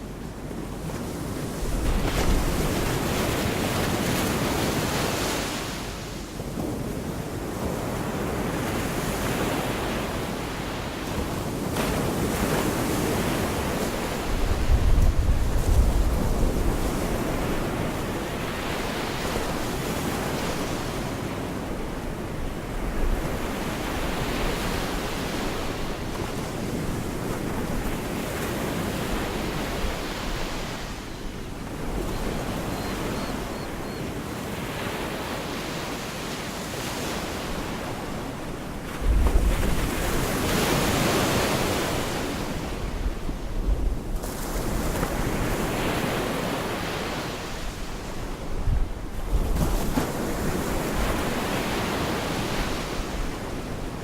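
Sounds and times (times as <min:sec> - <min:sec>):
small waves washing onto beach: 0:00.0 - 0:54.0
wind buffeting microphone: 0:11.3 - 0:20.2.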